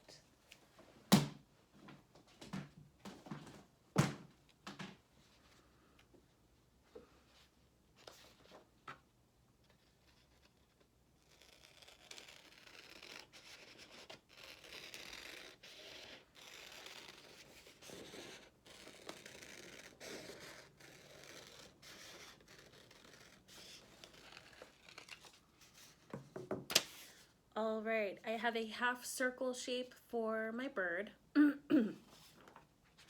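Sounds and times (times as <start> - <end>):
paper rustling: 20.4 - 27.3.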